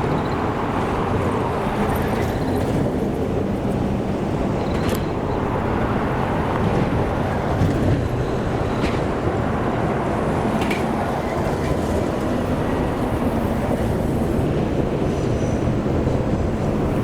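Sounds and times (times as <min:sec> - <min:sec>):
train running past: 0:00.0 - 0:17.0
train wheels clicking: 0:10.4 - 0:17.0.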